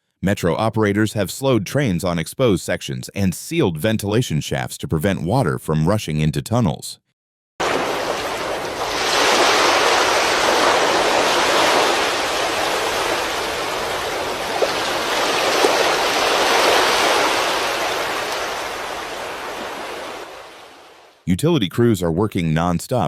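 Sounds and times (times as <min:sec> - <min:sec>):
rushing floodwater: 0:07.6 - 0:21.2.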